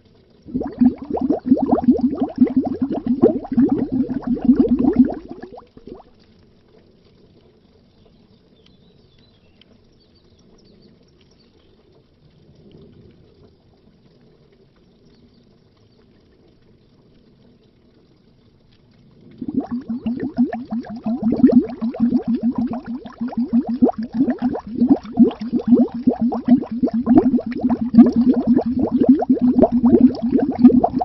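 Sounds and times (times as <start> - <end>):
underwater bubbling: 0.1 - 6.9, 19.0 - 31.0
faint low watery hush: 0.2 - 7.2, 18.7 - 31.0.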